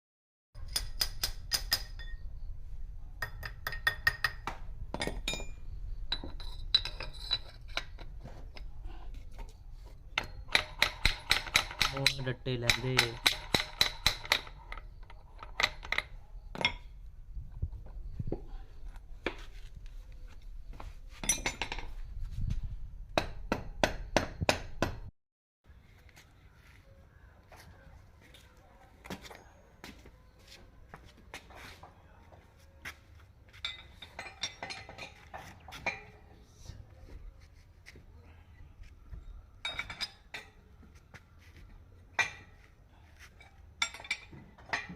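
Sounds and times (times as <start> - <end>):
metal tools clinking: 5.0 - 8.7, 33.6 - 36.2, 39.2 - 40.6, 43.4 - 44.9.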